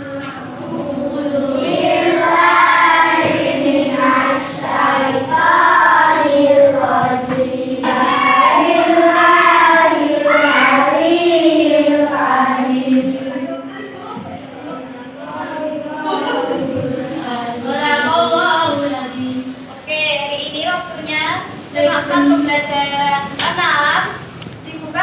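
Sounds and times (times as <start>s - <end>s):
children reciting in unison: 0.0s - 19.5s.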